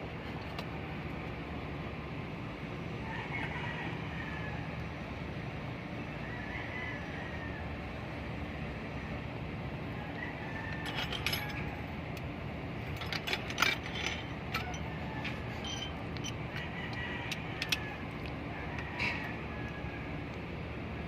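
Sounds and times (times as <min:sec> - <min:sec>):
hand tools clinking on metal: 0:10.8 - 0:11.7, 0:12.9 - 0:16.7.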